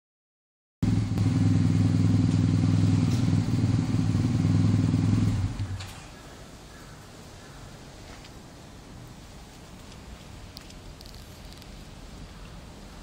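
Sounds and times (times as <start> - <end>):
loud low engine hum: 0.8 - 6.0.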